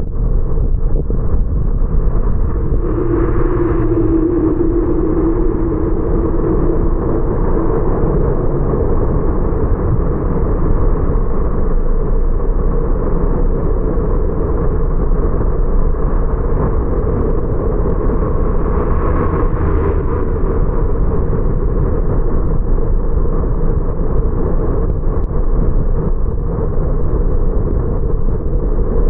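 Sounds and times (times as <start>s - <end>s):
road and tyre noise: 0.0s - 29.0s
car engine: 2.0s - 10.8s
humming note: 2.4s - 11.4s.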